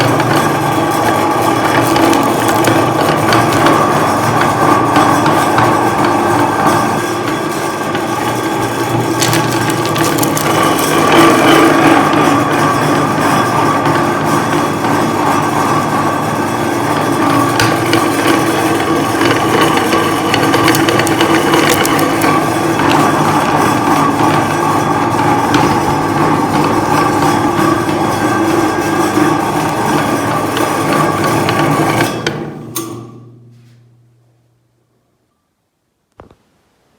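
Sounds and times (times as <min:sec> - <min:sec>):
electric meat grinder running: 0:00.0 - 0:32.4
sharp cracks and clicks: 0:01.6 - 0:03.8, 0:09.1 - 0:11.7, 0:17.6 - 0:23.7.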